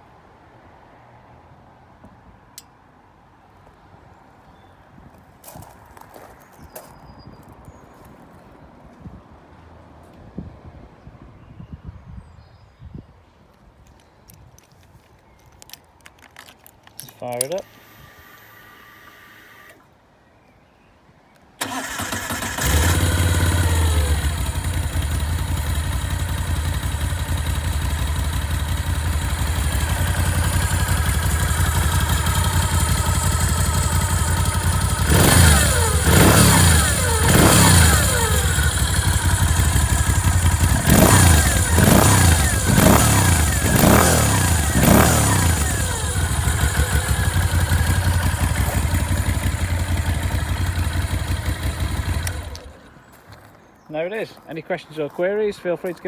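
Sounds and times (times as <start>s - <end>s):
motorcycle starter cranking: 21.6s - 53.0s
motorcycle engine idling: 21.6s - 53.1s
motorcycle throttle blips: 21.6s - 53.4s.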